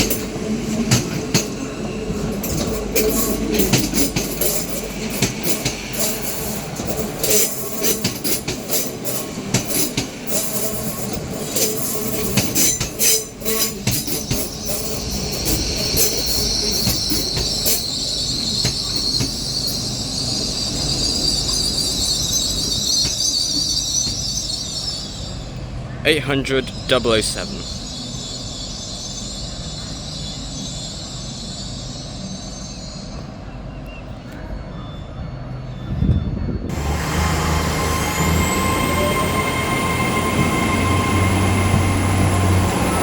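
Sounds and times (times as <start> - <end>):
train wheels clicking and knocking: 0.0 - 24.5
high-pitched wheel squeal: 10.2 - 25.6, 27.6 - 33.3, 34.3 - 43.0.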